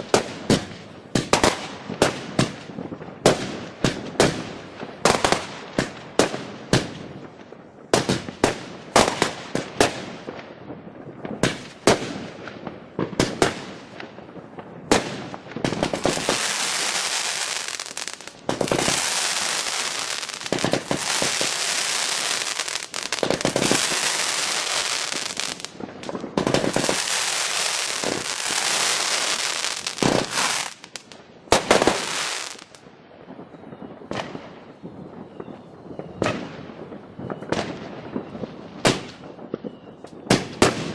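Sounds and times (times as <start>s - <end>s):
fireworks bangs: 0.0s - 40.9s
fireworks hissing crackle: 15.6s - 32.8s.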